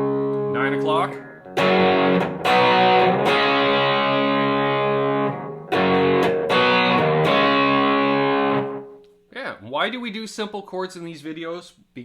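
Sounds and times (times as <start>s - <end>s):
distorted electric guitar chords: 0.0s - 9.1s.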